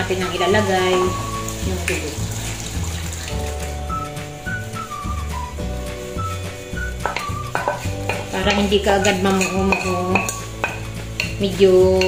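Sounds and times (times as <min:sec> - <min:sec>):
background music with bass line: 0:00.0 - 0:12.0
wooden spatula scraping a bowl: 0:00.2 - 0:12.0.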